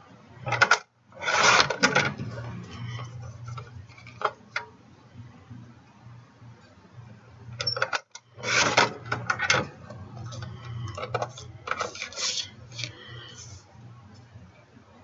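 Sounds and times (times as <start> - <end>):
cardstock scraping and rustling: 0.5 - 4.5, 8.4 - 13.6.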